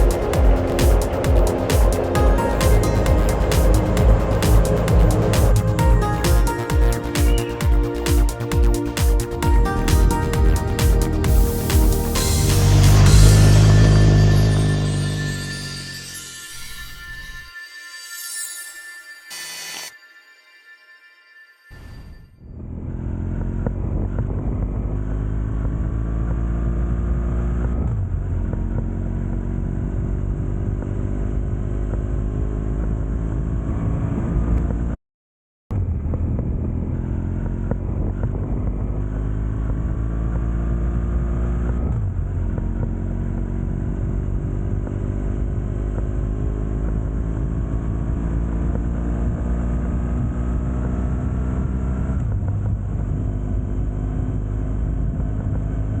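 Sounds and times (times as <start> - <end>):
motorcycle engine accelerating: 0.0 - 15.6.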